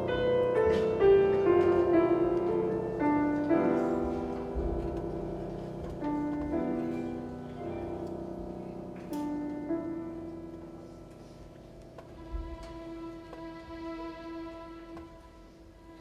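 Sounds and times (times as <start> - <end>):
slow solo piano: 0.0 - 12.2.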